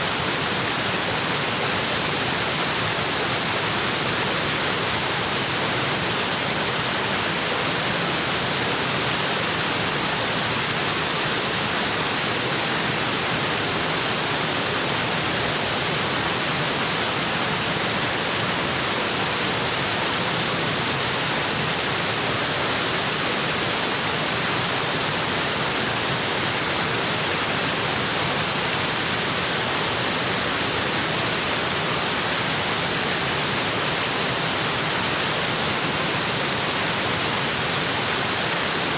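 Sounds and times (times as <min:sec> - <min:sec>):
waterfall onto rocks: 0:00.1 - 0:38.9.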